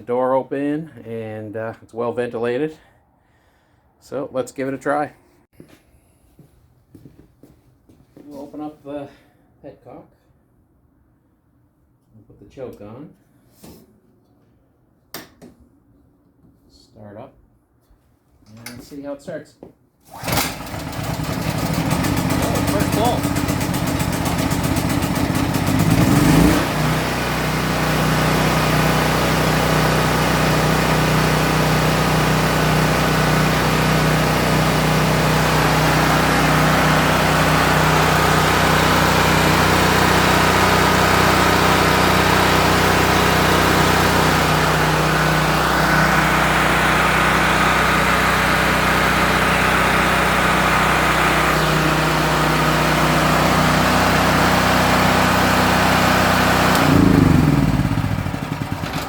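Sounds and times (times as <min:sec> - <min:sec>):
portable generator engine running: 0:20.1 - 0:59.0.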